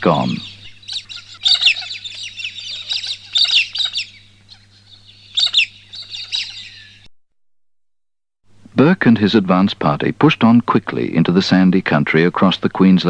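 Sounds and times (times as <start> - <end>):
wild birds twittering: 0.0 - 7.1.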